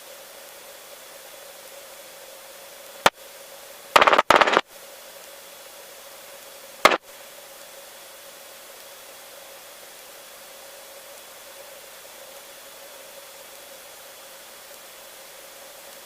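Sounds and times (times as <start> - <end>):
faint steady hum: 0.0 - 16.0
radio clicks: 4.0 - 4.6
radio static bursts: 4.0 - 4.6
radio hiss: 4.0 - 4.7, 6.8 - 7.1.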